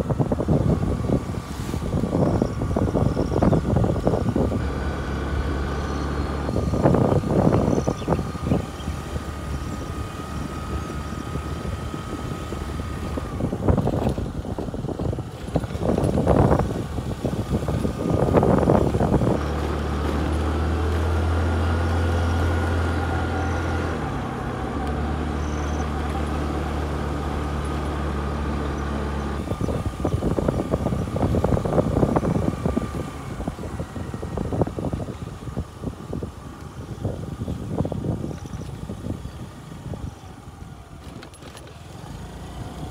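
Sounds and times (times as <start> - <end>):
vehicle engine humming: 0.0 - 42.9.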